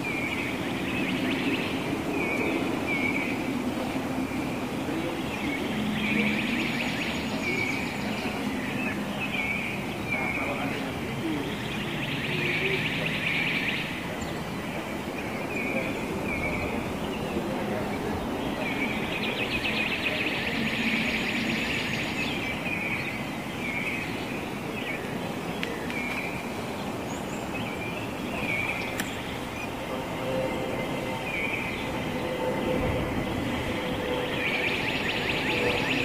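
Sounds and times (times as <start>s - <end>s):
birds chirping: 0.0s - 36.0s
steady background hiss: 0.0s - 36.0s.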